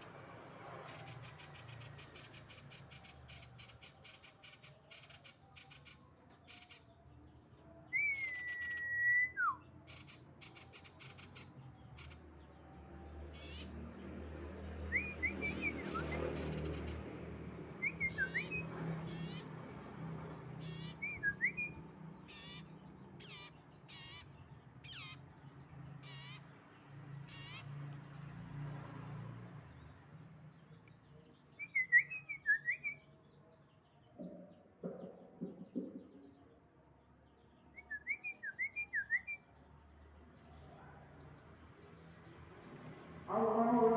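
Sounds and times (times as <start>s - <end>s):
bird trills and whistles: 7.9s - 11.4s, 15.0s - 16.9s, 17.8s - 18.6s, 20.8s - 21.8s, 31.6s - 33.0s, 37.7s - 39.4s.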